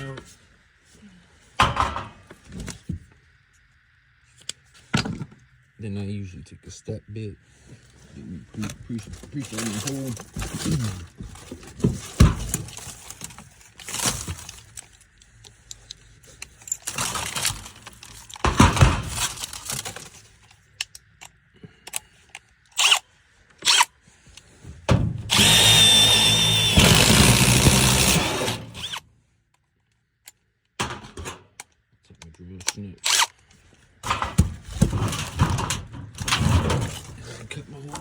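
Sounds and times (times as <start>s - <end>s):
knocks and handling: 1.5s - 3.3s, 8.5s - 22.9s, 23.5s - 29.0s, 30.8s - 38.0s
power drill drilling sheet metal: 25.3s - 29.0s.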